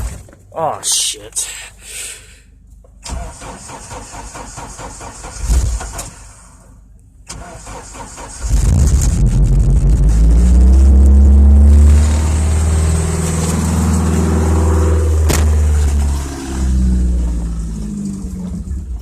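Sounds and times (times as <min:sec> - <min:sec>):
van engine idling rough: 0:08.3 - 0:19.0.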